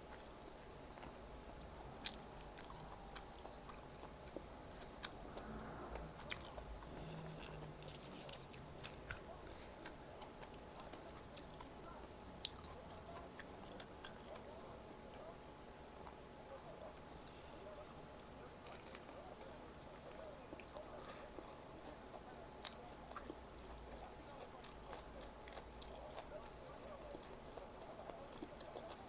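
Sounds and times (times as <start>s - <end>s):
person chewing food: 1.0s - 11.8s, 12.4s - 15.3s, 18.6s - 29.0s.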